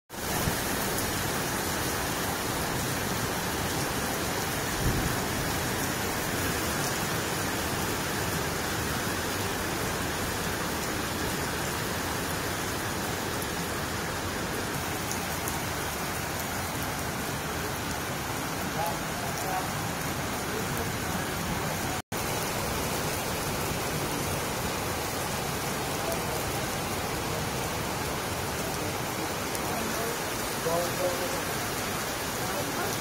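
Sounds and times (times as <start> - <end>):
heavy rain on pavement: 0.1 - 33.0.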